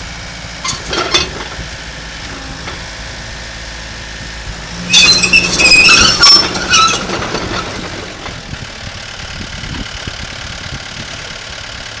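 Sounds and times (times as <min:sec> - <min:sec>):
diesel engine running: 0:00.0 - 0:12.0
high-pitched metal squeals: 0:00.6 - 0:01.6, 0:04.7 - 0:08.4
irregular metal clanking: 0:00.6 - 0:03.3, 0:04.8 - 0:08.5.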